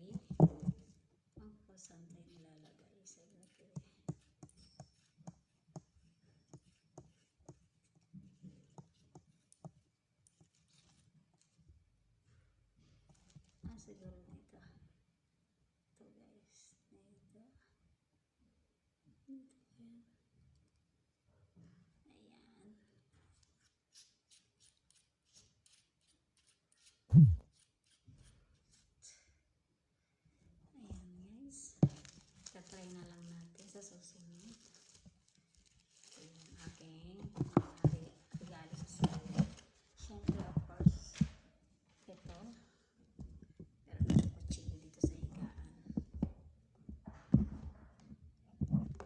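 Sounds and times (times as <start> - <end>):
low thud with dropping pitch: 27.1 - 27.4.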